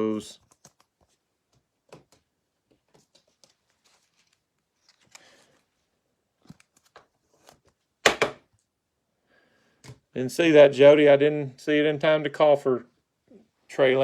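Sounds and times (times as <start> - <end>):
soft rustle of cards: 0.0 - 8.0
faint clicks of cards: 2.9 - 5.7.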